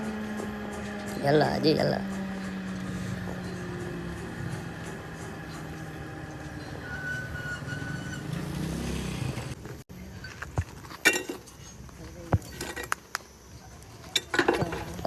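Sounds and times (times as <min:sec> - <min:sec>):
metal parts clinking: 0:10.2 - 0:15.0.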